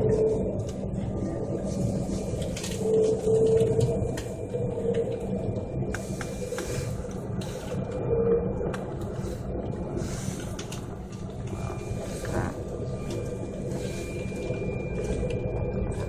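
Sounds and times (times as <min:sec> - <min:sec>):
aircraft engines droning: 0:00.0 - 0:16.0
faint rattles and clicks: 0:10.2 - 0:11.6.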